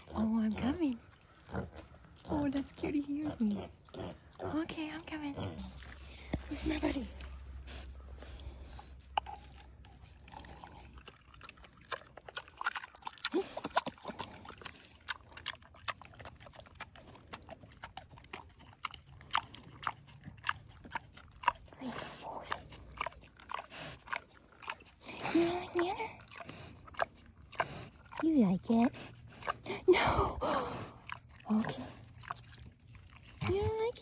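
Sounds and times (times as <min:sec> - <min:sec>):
animal chewing and crunching food: 0:00.0 - 0:34.0.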